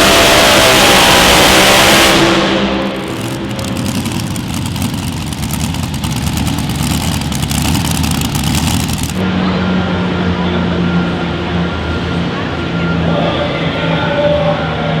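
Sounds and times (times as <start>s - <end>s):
pulling vehicle engine running: 1.8s - 9.2s.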